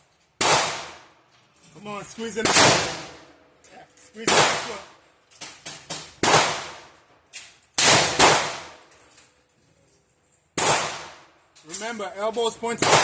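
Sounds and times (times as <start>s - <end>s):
echoing handgun shots: 0.4s - 1.1s, 2.4s - 3.2s, 4.3s - 4.9s, 6.0s - 6.8s, 7.8s - 8.8s, 10.6s - 11.3s, 12.8s - 13.0s.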